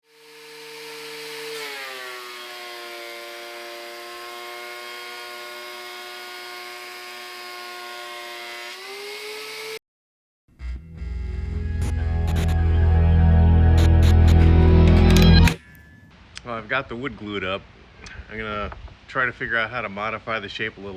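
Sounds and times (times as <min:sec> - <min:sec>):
power tool motor whining: 0:00.0 - 0:09.8, 0:10.6 - 0:12.8, 0:13.7 - 0:15.6
rushing noise of cutting: 0:11.5 - 0:15.6.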